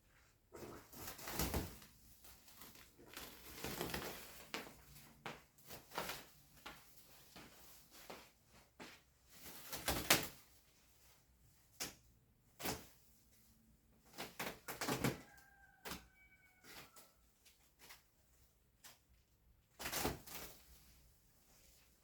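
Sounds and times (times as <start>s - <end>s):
wrapping paper rustling and crackling: 0.5s - 8.0s.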